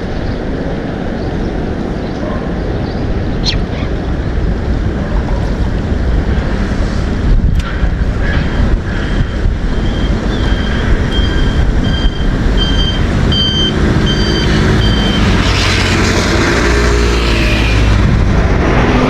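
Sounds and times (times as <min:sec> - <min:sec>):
vehicle reversing alarm beeping: 0:08.5 - 0:15.4.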